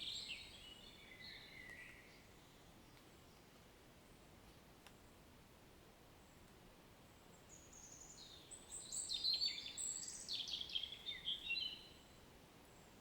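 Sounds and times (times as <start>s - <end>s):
faint background hiss: 0.0s - 13.0s
songbird chirping and trilling: 7.5s - 12.0s.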